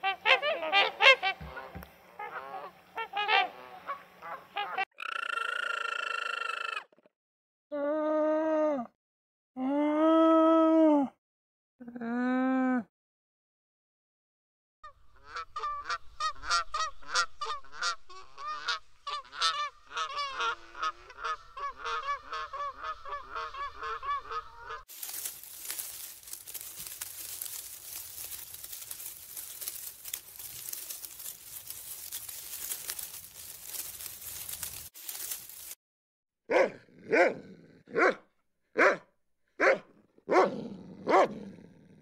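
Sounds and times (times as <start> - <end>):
birds honking: 15.0 - 35.7.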